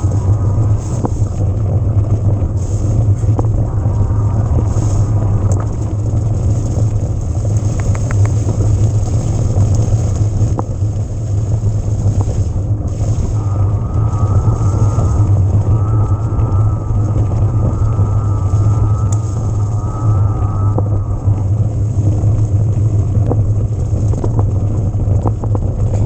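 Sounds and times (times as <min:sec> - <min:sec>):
bike tyres on trail: 0:00.0 - 0:26.0
wind across microphone: 0:00.0 - 0:26.0
light ticks and clicks: 0:06.4 - 0:12.4.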